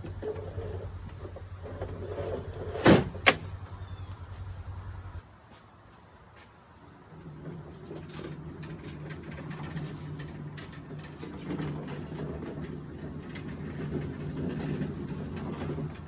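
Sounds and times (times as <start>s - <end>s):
wheeled pallets rolling on floor: 0.0s - 4.1s, 6.8s - 16.0s
clicks and rattles: 7.4s - 16.0s.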